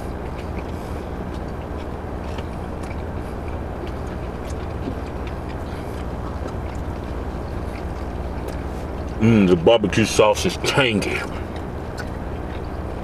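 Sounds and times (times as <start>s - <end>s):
low hum inside a car: 0.0s - 13.0s
people chewing: 0.0s - 13.0s.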